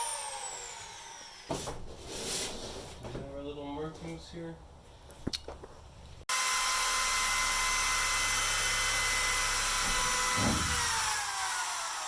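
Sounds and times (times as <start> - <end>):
power tool motor whine: 0.0 - 1.5, 6.3 - 12.0.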